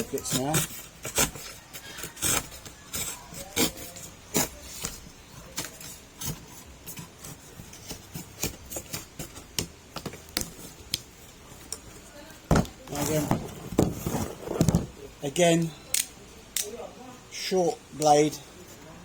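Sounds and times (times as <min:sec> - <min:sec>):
knife scraping carbon fibre: 0:00.0 - 0:09.5.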